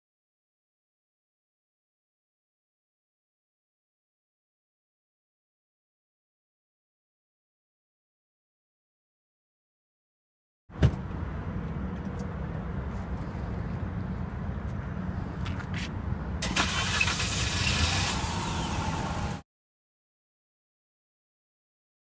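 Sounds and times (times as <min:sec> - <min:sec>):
engine cranking on starter: 0:16.4 - 0:19.4.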